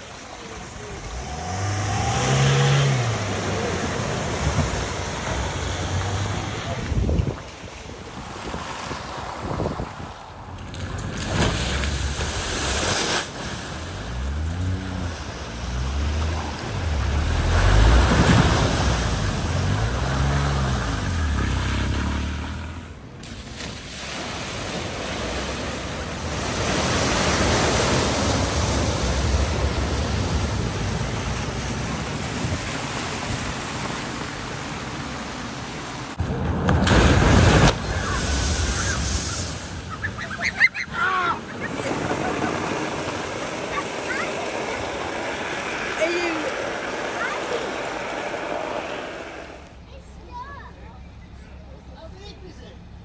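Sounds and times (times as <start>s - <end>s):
water spraying and rushing: 0.0s - 50.0s
car engine revving: 0.7s - 7.0s, 13.7s - 23.0s.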